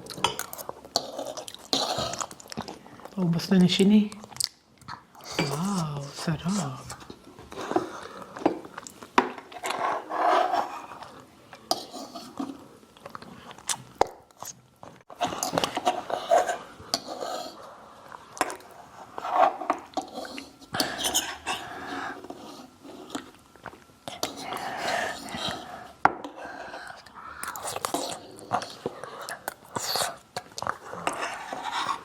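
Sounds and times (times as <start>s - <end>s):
chewing: 0.0s - 3.2s, 6.9s - 9.1s, 26.2s - 32.0s.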